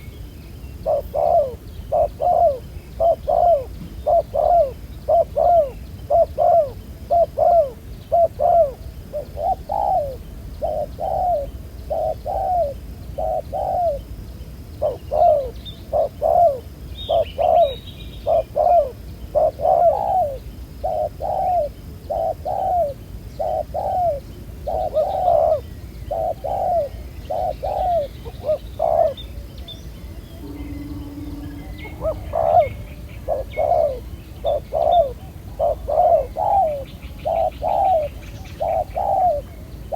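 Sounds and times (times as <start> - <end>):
doves cooing: 0.8 - 14.1, 14.8 - 29.7, 30.3 - 39.9.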